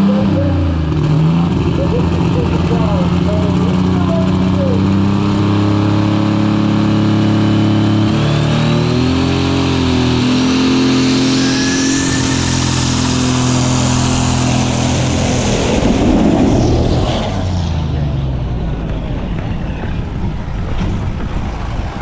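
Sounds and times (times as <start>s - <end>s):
diesel engine running hard: 0.0s - 22.0s
turbo whine: 7.8s - 21.0s
rush of noise: 8.0s - 22.0s.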